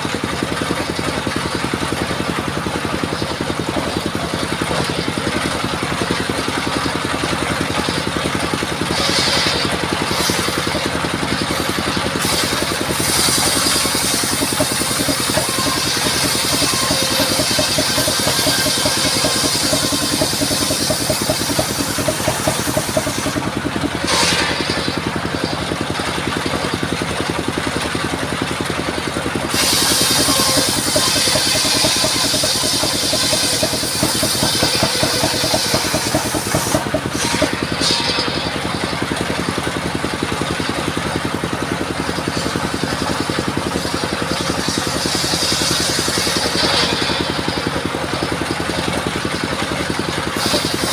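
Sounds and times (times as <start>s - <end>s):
sawmill engine running: 0.0s - 50.9s
high sawing hiss: 29.5s - 38.2s.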